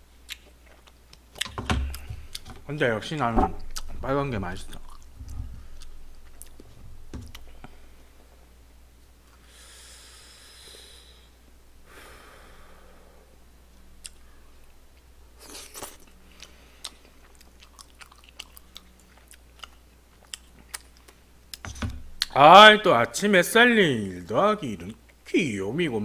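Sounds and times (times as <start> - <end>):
person chewing: 0.2 - 2.6, 3.6 - 4.0, 4.7 - 7.8, 15.4 - 21.6
soft hissing breaths: 7.4 - 8.6, 9.2 - 13.6, 16.2 - 17.0.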